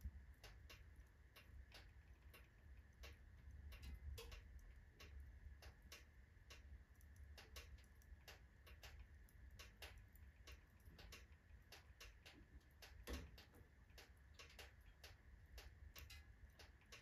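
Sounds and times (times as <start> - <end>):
low steady rumble: 0.0 - 17.0
wood fire crackling: 0.0 - 17.0.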